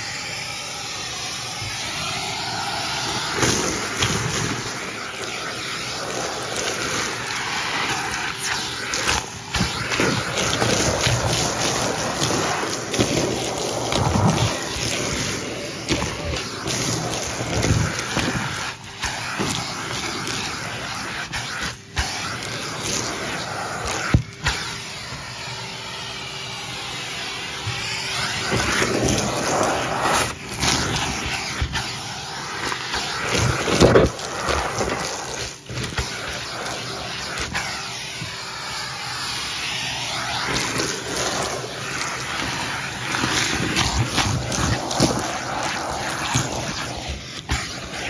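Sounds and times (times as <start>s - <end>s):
vacuum cleaner running: 0.0s - 48.0s
debris rattling through hose: 2.9s - 24.0s, 28.4s - 37.7s.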